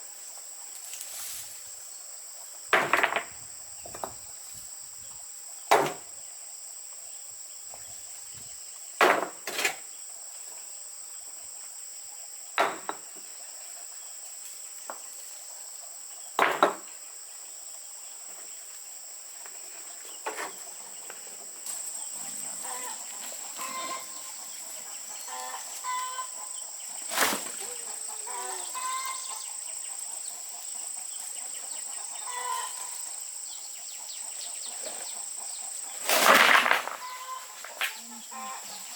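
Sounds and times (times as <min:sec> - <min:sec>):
high insect drone: 0:00.0 - 0:38.9
chickens clucking: 0:20.3 - 0:33.2, 0:33.8 - 0:38.9.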